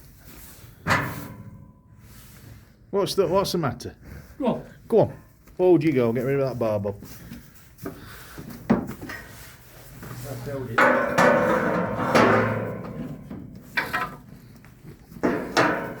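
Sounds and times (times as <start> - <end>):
metal trailer knocks and bangs: 0.8 - 1.8, 10.7 - 14.3, 15.2 - 16.0.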